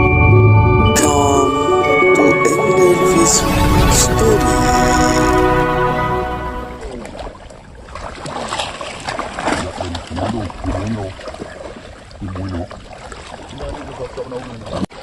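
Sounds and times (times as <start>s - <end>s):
water splashing in a pond: 6.8s - 15.0s.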